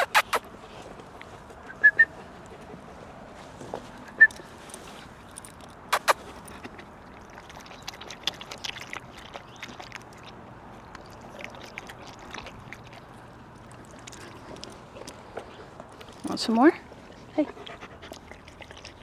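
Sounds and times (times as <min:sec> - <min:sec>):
dog lapping water: 0:00.0 - 0:00.4, 0:05.9 - 0:16.1, 0:17.0 - 0:19.0
sharp clicks: 0:00.0 - 0:00.4, 0:05.4 - 0:06.6.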